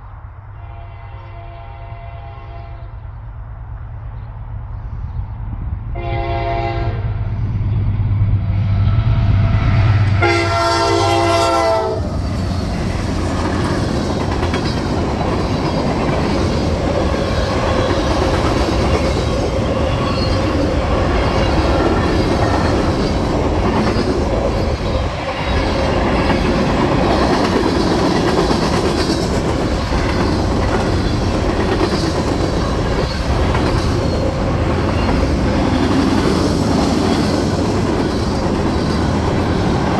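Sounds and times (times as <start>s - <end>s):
train horn blasts: 0.5s - 3.0s, 5.9s - 7.2s, 10.1s - 12.1s.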